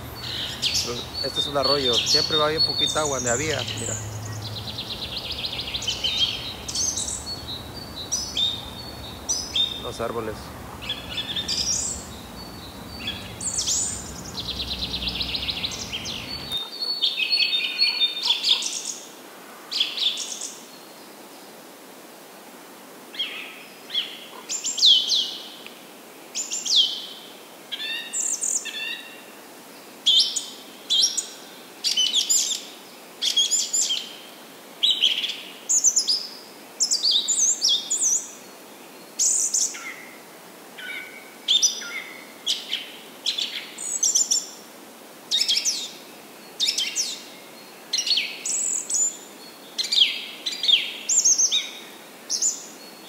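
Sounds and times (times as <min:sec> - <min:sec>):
flooded creek rushing: 0:00.0 - 0:16.6
songbird singing: 0:00.0 - 0:19.0, 0:45.3 - 0:53.0.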